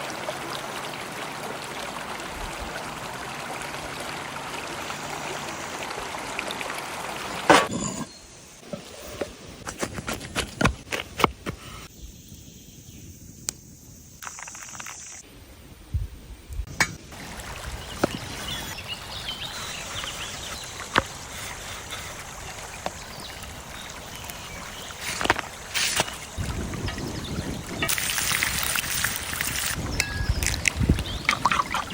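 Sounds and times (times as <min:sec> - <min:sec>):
water trickling and running: 0:00.0 - 0:07.7, 0:15.9 - 0:31.9.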